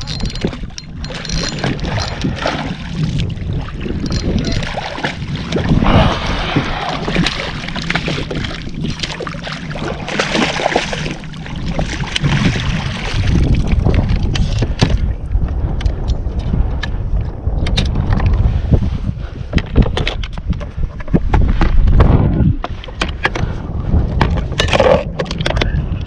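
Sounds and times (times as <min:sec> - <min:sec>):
water sloshing around kayak: 0:00.0 - 0:15.5
wind on microphone: 0:00.0 - 0:26.0.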